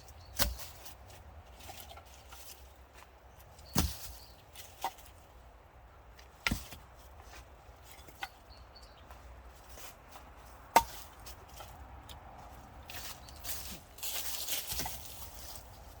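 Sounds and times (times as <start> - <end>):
axe chopping wood: 0.3 - 0.9, 3.6 - 4.2, 6.4 - 6.9, 10.7 - 11.4.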